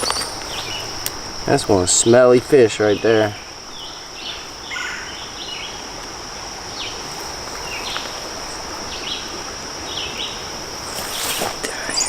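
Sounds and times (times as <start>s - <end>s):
bird chirps: 0.0s - 1.0s, 11.7s - 12.0s
high-pitched insect drone: 0.0s - 12.0s.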